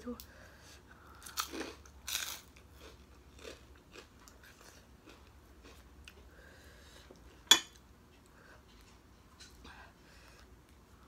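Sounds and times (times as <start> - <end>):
person chewing food: 0.9 - 9.6.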